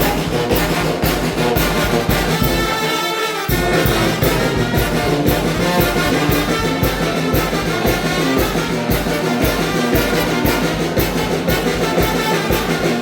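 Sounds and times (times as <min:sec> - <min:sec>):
drum and cymbal beat: 0:00.0 - 0:13.0
trumpets and trombones: 0:00.0 - 0:13.0.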